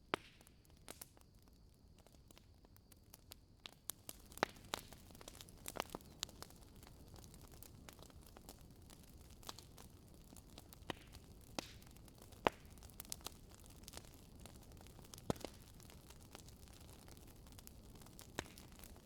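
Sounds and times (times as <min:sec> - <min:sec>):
wood fire crackling: 0:00.1 - 0:19.0.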